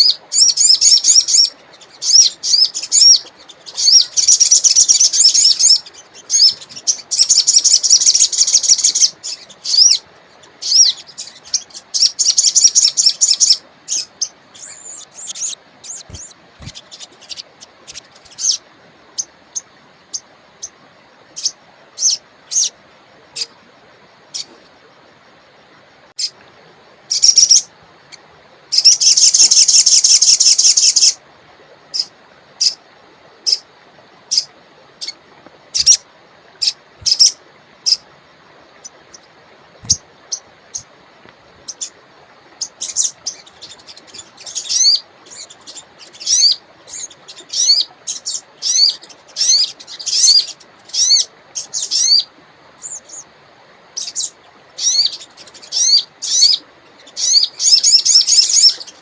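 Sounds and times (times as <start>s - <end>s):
faint steady hiss: 0.0s - 59.0s
bird calling with high chips: 10.6s - 18.6s, 36.6s - 38.0s
bird high trill: 10.6s - 18.6s.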